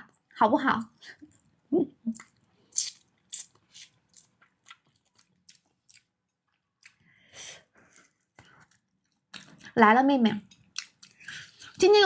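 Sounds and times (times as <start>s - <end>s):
person chewing and crunching: 2.1s - 7.2s, 7.8s - 9.8s, 10.4s - 11.8s.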